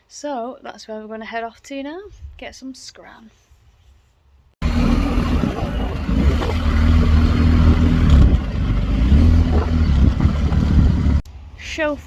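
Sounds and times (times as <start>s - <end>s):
motorcycle engine running: 4.6s - 11.2s
wind and road noise: 4.6s - 12.0s.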